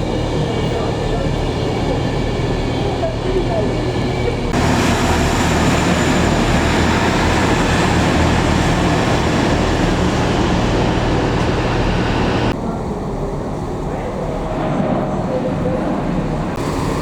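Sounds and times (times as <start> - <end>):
train rumbling: 0.0 - 17.0
rushing noise: 4.5 - 12.6.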